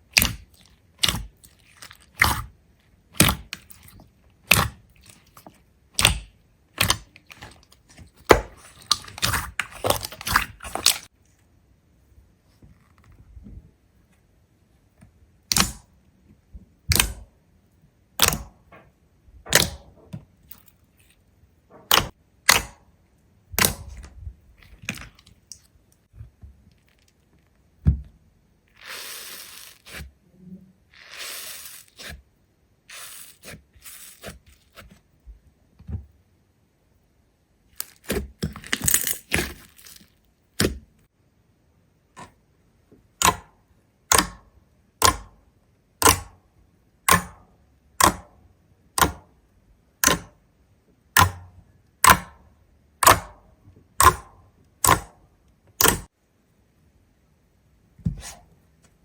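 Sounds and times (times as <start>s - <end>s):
scraping or rustling: 28.7s - 32.2s.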